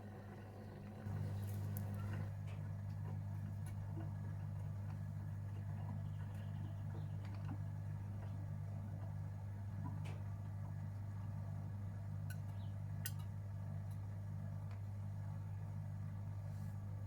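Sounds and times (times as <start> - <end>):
washing machine hum: 0.0 - 12.2.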